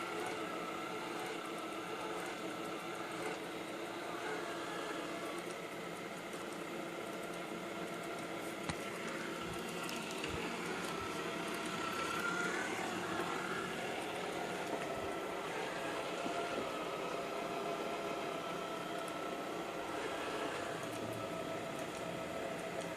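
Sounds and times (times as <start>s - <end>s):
robot vacuum motor hum: 0.0s - 22.9s.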